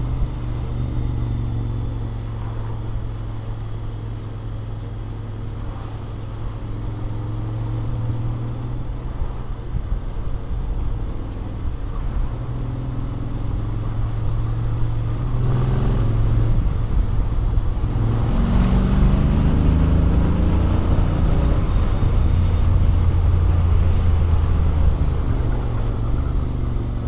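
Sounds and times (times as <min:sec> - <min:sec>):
motorcycle engine revving: 0:10.8 - 0:27.0.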